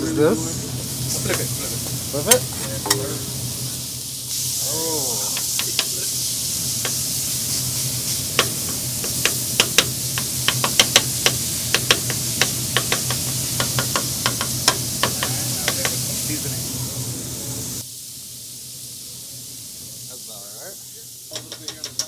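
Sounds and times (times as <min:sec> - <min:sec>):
meat sizzling on a griddle: 0:00.1 - 0:22.0
metal spatula clacking and scraping: 0:08.4 - 0:16.0.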